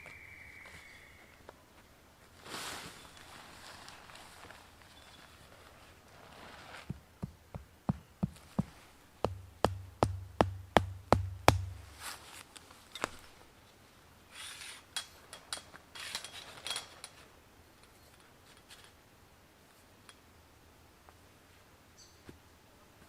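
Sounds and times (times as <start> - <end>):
scraping and rustling: 2.4 - 9.4
sharp knocks: 6.9 - 12.0.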